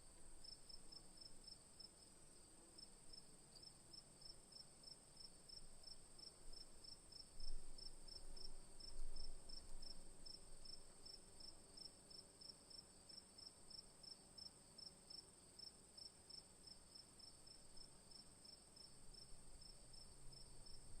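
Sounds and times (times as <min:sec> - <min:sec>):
crickets chirping: 0:15.6 - 0:21.0.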